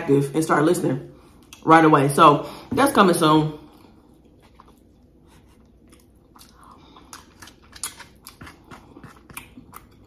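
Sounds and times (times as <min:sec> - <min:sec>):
soft chewing: 0:03.6 - 0:10.0.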